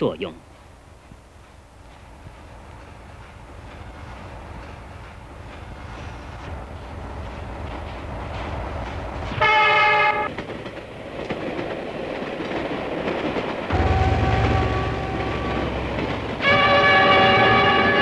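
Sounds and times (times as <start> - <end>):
train rumbling: 0.0 - 18.0
train horn blast: 9.4 - 10.3, 13.7 - 18.0.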